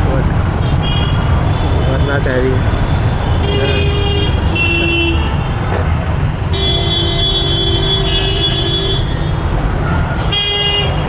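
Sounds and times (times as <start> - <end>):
road and engine rumble: 0.0 - 11.0
vehicle horn honking: 3.4 - 5.6, 6.5 - 9.2.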